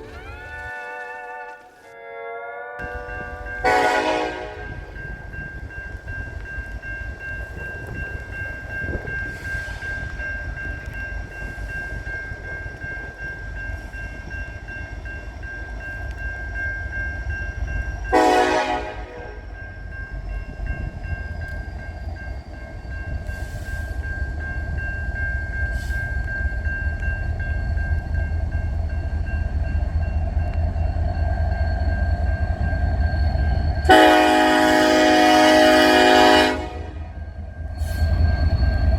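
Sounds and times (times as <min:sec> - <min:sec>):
train rumbling: 0:00.0 - 0:02.0, 0:02.8 - 0:38.9
locomotive air horn blast: 0:02.9 - 0:04.8, 0:18.1 - 0:19.4, 0:33.9 - 0:37.1.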